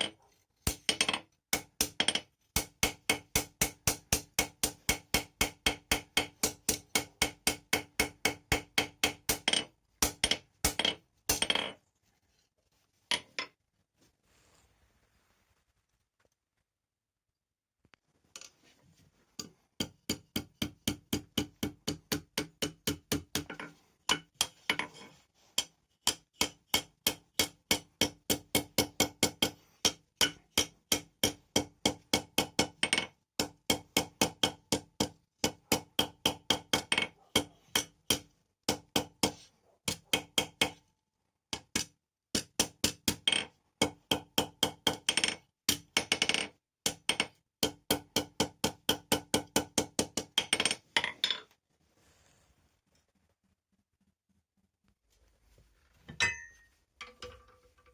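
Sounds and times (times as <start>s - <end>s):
hammer striking steel on anvil: 56.2s - 56.7s.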